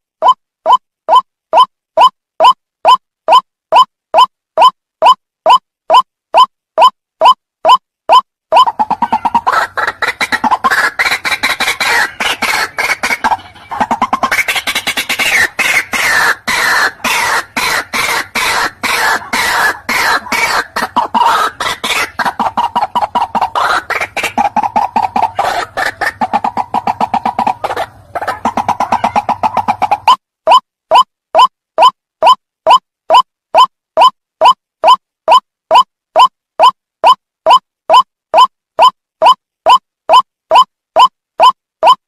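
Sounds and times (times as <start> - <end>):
waterhen calling harsh notes: 8.6 - 33.7.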